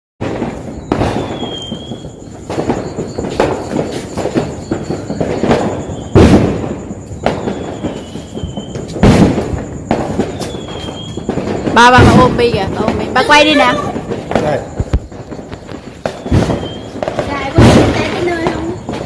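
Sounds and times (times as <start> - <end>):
firecrackers banging: 0.2 - 19.0
faint high whistling tone: 0.7 - 6.2, 6.9 - 9.0, 10.3 - 11.3, 14.5 - 19.0.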